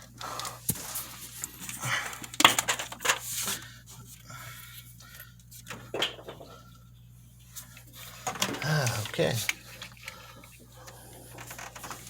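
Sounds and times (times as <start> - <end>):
hands rustling wires: 7.6 - 10.7.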